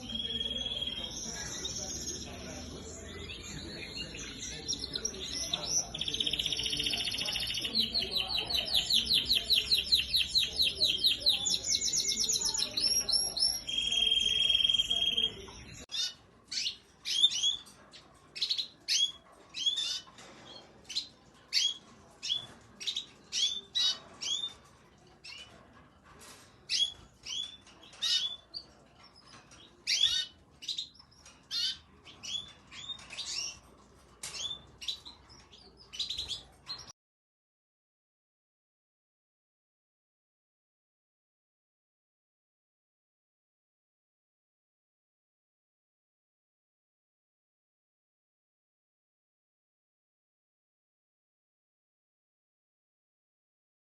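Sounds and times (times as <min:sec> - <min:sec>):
canaries trilled song: 0:00.0 - 0:36.9.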